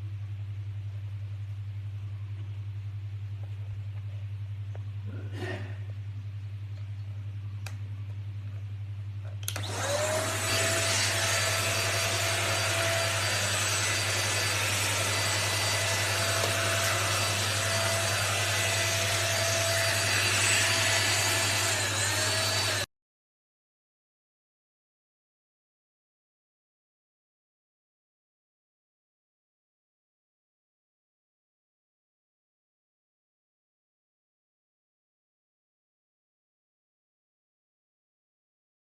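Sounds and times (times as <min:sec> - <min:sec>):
vacuum cleaner motor whining: 0:09.4 - 0:22.9.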